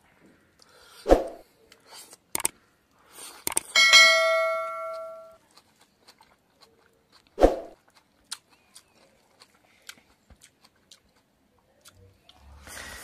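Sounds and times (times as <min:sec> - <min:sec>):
man chewing: 0:01.6 - 0:03.8, 0:04.9 - 0:13.0.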